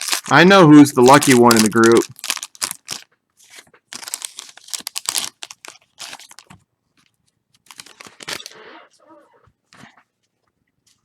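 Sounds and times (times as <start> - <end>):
cards and wrappers clicking: 0.0 - 8.6
plastic packaging crinkling: 0.0 - 8.6.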